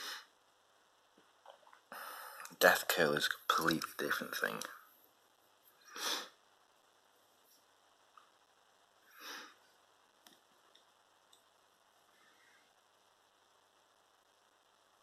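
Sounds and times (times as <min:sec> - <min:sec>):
person breathing noisily: 0:01.9 - 0:02.5
faint clicks: 0:10.2 - 0:11.5.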